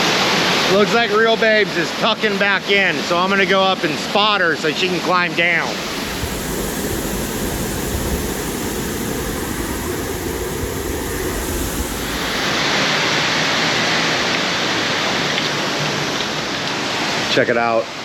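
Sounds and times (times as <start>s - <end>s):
waterfall rushing: 5.6s - 12.8s.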